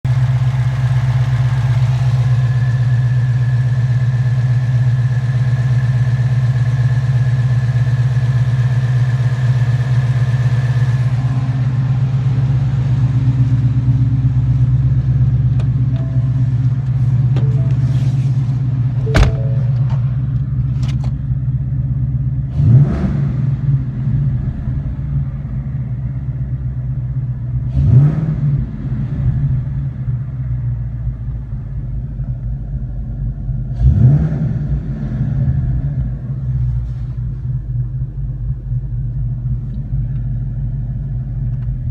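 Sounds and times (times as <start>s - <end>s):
car engine idling: 0.0s - 41.9s
high whine: 15.8s - 20.8s.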